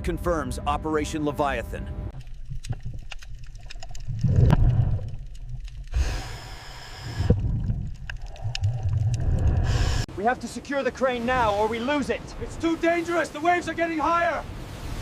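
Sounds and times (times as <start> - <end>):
faint clicks: 2.1 - 10.0
underwater rumble: 2.1 - 10.1
breathy hiss: 5.9 - 7.4, 9.6 - 10.1.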